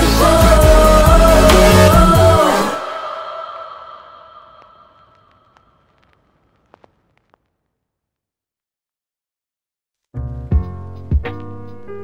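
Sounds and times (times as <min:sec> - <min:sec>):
faint hiss: 0:02.8 - 0:07.5.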